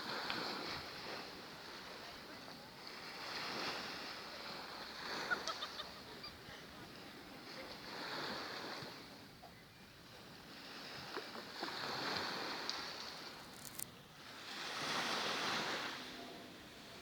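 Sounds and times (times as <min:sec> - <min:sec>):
sea waves washing in: 0:10.2 - 0:17.0.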